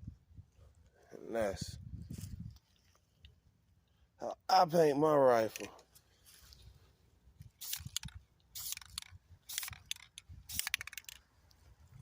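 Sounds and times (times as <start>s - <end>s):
mechanical clicking and rattling: 7.7s - 11.2s.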